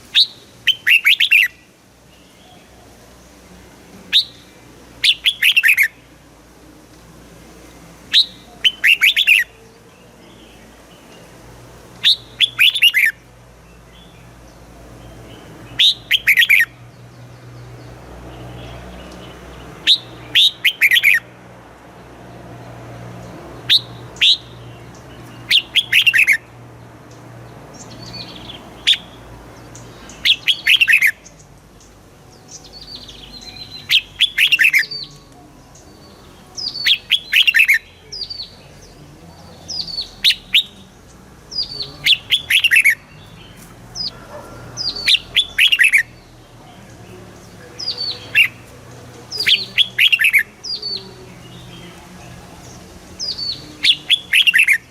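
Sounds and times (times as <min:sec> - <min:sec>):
bird whistling song: 0:00.1 - 0:01.7, 0:04.1 - 0:06.1, 0:08.1 - 0:10.5, 0:12.0 - 0:13.2, 0:15.7 - 0:16.8, 0:19.8 - 0:21.3, 0:23.6 - 0:26.5, 0:27.8 - 0:31.4, 0:32.3 - 0:35.3, 0:36.0 - 0:39.0, 0:39.7 - 0:46.4, 0:47.8 - 0:48.7, 0:49.3 - 0:52.0, 0:53.2 - 0:54.9.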